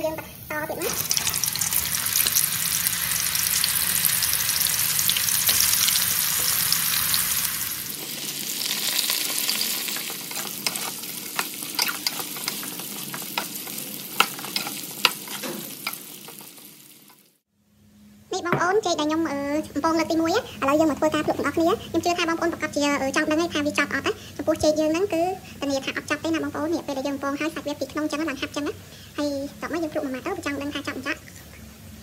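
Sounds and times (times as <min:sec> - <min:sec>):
food deep-frying in oil: 0:00.0 - 0:17.4
metal skimmer scraping wok: 0:00.8 - 0:16.6.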